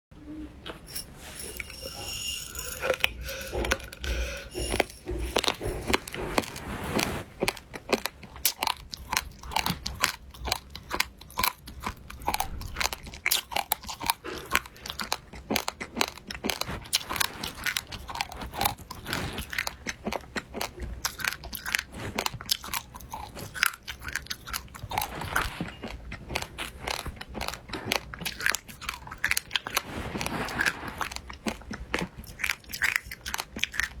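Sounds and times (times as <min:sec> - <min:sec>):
crunchy food chewing: 0:02.0 - 0:34.0.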